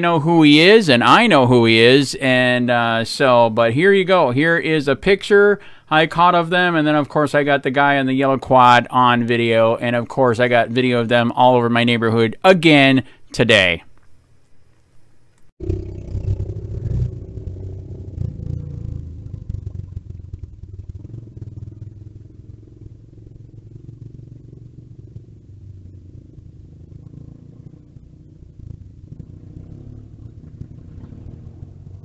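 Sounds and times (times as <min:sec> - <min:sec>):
small vehicle engine droning: 0:15.6 - 0:32.0.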